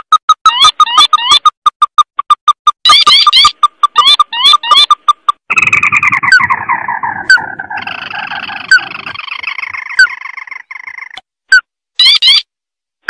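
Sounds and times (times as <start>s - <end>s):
bird chattering trill: 0.3s - 11.2s, 12.0s - 12.5s
sharp rising bird chirps: 2.8s - 11.2s.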